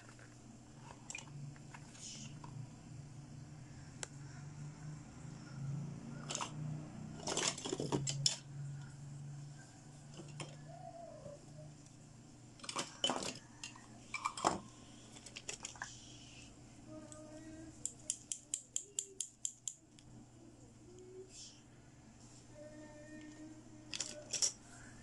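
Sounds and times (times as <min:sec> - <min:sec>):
plastic toy pieces clattering: 0:07.2 - 0:08.4, 0:23.9 - 0:24.6.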